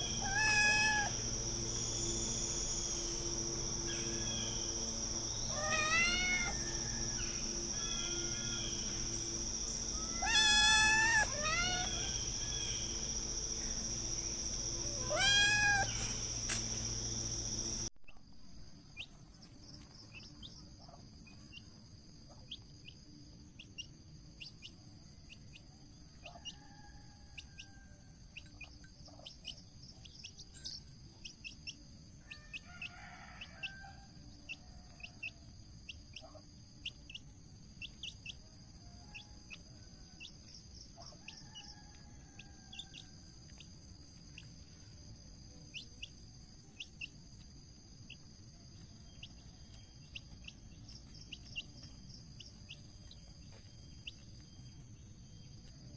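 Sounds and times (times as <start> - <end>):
bird whistled calls: 0.0 - 17.9
birds chirping: 0.0 - 17.9
insect trill: 0.0 - 55.9.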